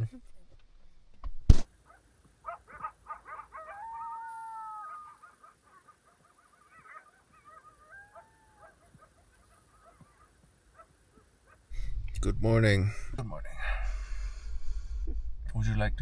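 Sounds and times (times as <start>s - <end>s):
animal calling: 1.9s - 11.7s.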